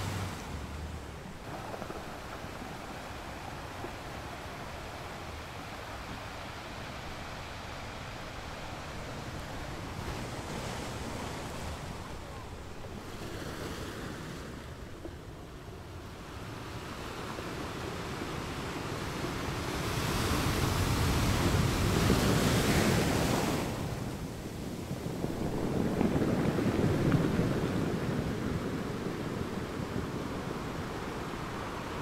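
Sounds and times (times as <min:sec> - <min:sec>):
sea waves breaking on shore: 0:00.0 - 0:32.0.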